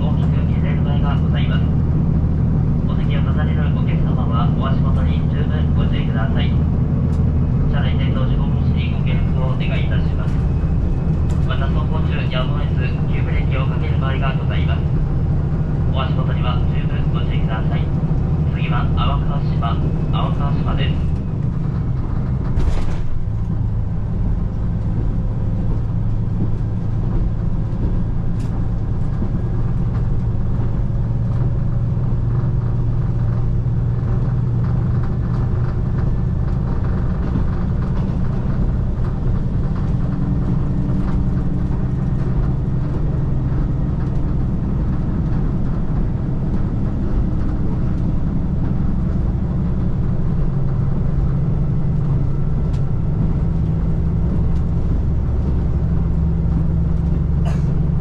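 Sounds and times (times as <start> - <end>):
diesel railcar engine drone: 0.0 - 58.0.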